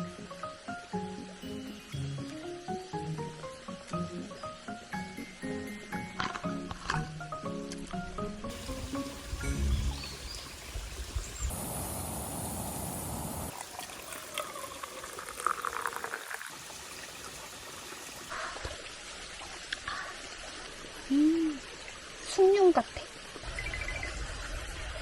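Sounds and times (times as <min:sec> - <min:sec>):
liquid pouring into cup: 0:11.6 - 0:18.0.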